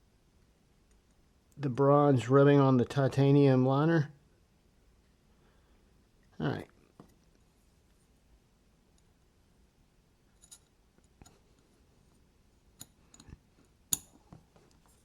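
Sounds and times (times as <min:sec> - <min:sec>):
knife parts clicking and tapping: 0:12.8 - 0:14.4.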